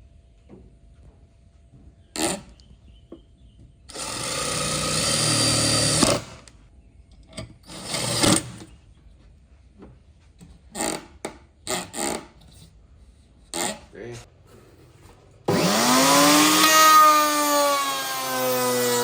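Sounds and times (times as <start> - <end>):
electric power tool running: 3.9 - 6.4, 15.5 - 19.0.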